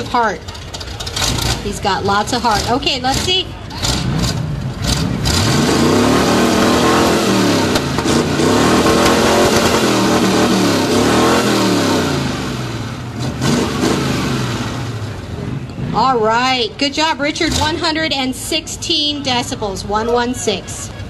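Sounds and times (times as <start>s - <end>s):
car engine revving hard: 2.4s - 16.1s.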